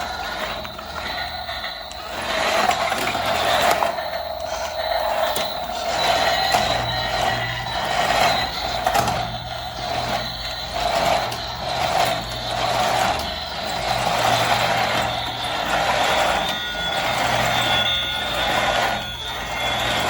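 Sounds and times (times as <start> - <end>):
toy motor and gears whirring: 0.0 - 20.0.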